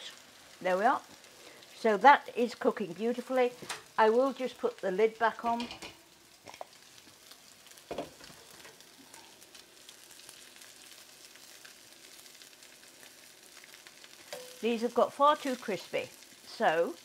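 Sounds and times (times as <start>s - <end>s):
food sizzling in a skillet: 0.0s - 17.0s.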